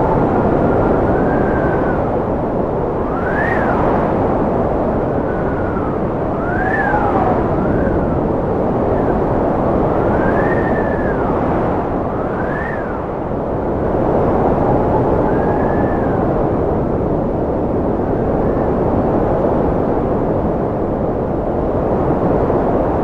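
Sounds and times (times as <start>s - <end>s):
howling wind whistle: 0.0s - 23.0s
strong wind rushing: 0.0s - 23.0s.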